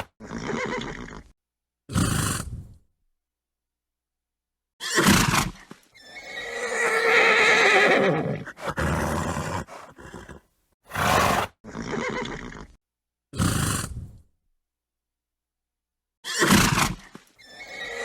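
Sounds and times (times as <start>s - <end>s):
horse whinnying: 0.0s - 1.3s, 4.8s - 12.8s, 16.2s - 18.0s
horse snorting: 1.9s - 2.8s, 6.3s - 12.8s, 13.4s - 14.2s.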